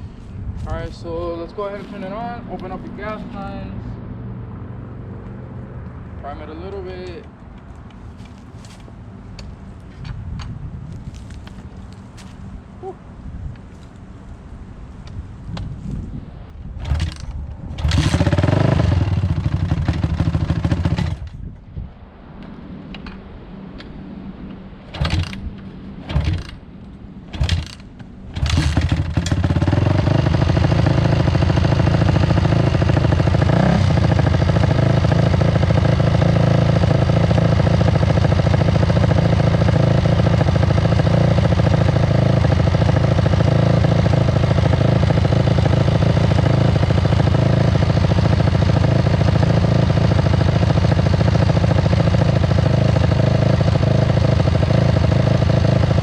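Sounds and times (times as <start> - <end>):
motorcycle engine starting and idling: 16.5 - 21.6, 24.5 - 56.0.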